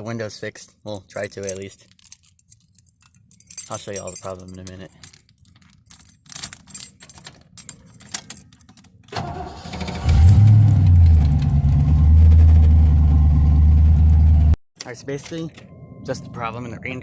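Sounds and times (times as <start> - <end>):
car keys jangling: 0.9 - 9.1
car engine cranking and idling: 9.1 - 14.6.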